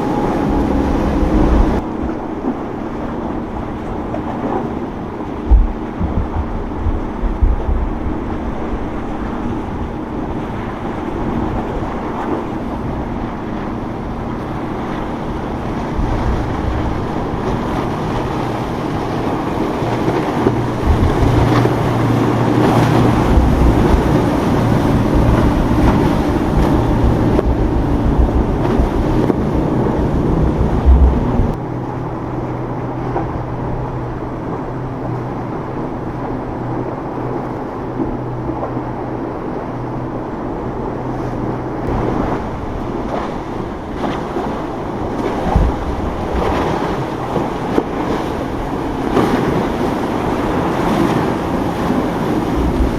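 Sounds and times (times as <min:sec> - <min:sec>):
motorboat engines running: 0:00.0 - 0:52.9
wind buffeting microphone: 0:00.0 - 0:52.9.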